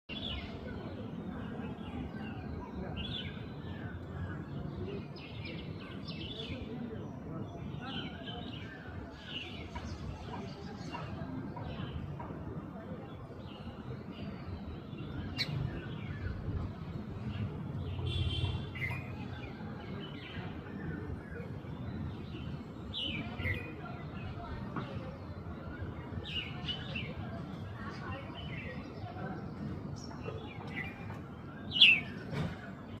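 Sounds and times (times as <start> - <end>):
low background noise: 0.1 - 33.0.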